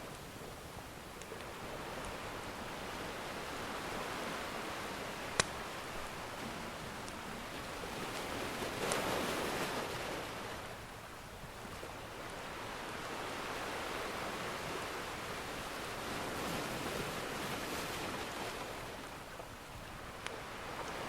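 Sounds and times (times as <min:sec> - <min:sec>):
ocean surf washing in: 0:01.5 - 0:10.9
fire crackling and popping: 0:05.1 - 0:06.4.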